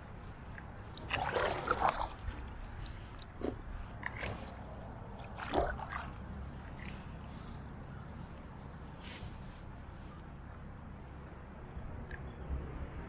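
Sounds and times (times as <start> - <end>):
paddle splashing in water: 0.0 - 7.6
wind rumble on microphone: 0.0 - 13.0.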